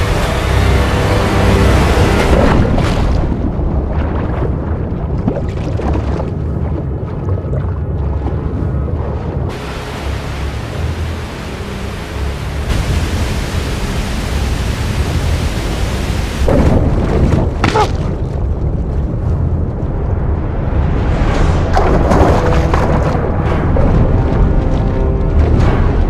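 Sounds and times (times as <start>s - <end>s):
waterfall rushing and crashing: 0.0s - 3.3s, 9.5s - 16.9s
deep rumble: 0.0s - 26.0s.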